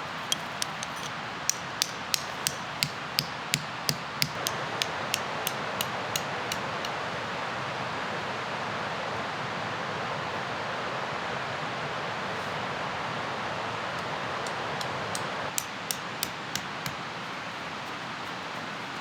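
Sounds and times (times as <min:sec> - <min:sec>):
sharp knocks: 0:00.3 - 0:07.0.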